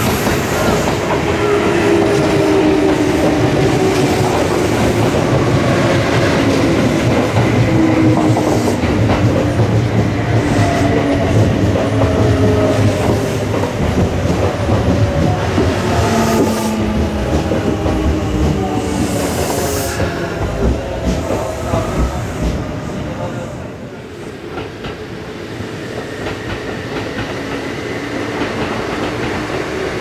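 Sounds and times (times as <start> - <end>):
electric train whine: 0.0 - 30.0
train wheels clicking over rail joints: 2.0 - 22.7, 26.0 - 30.0.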